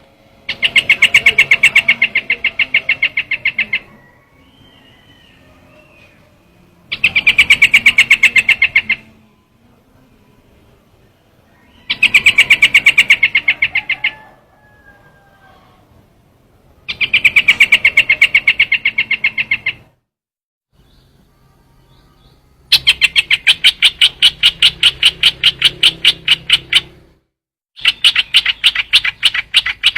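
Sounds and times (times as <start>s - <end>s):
bird chattering call: 0.5s - 6.2s, 6.9s - 9.2s, 11.6s - 14.7s, 16.9s - 19.9s, 22.7s - 27.0s, 27.8s - 29.9s.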